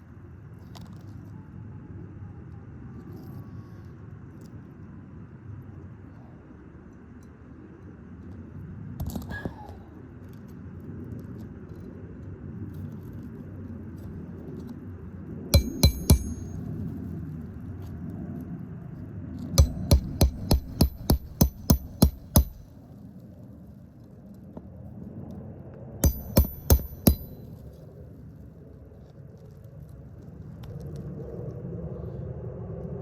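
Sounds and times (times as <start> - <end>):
hammer striking nail: 15.6 - 16.6, 19.6 - 22.7, 26.0 - 27.4
low background rumble: 19.6 - 22.8.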